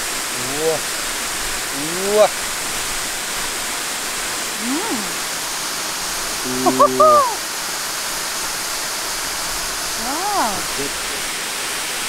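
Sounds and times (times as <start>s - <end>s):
waterfall rushing: 0.0s - 12.0s
person exclaiming whoa: 0.3s - 0.8s, 1.7s - 2.3s, 4.6s - 5.2s, 6.4s - 7.4s, 10.0s - 10.8s
person humming: 0.3s - 0.8s, 1.7s - 2.3s, 4.5s - 5.4s, 6.4s - 7.4s, 10.0s - 10.9s.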